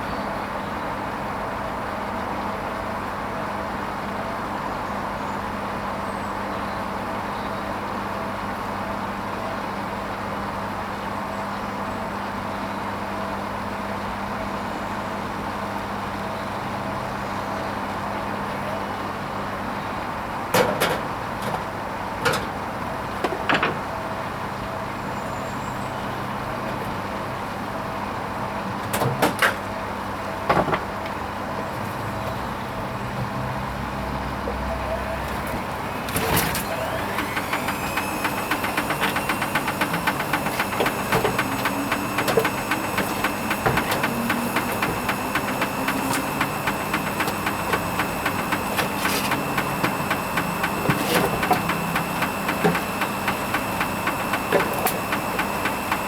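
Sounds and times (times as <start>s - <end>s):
washing machine clicks and clunks: 20.5s - 24.0s, 28.8s - 29.8s, 35.2s - 56.0s
washing machine humming: 25.9s - 56.0s.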